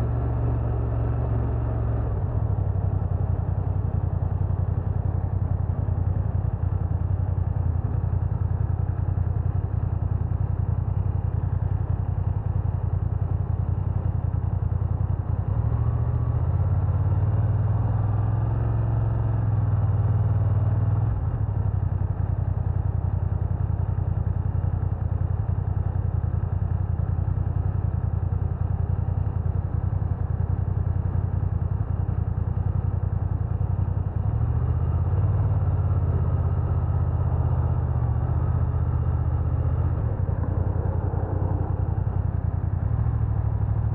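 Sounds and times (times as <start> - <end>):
motorcycle engine rumbling: 35.1 - 43.9.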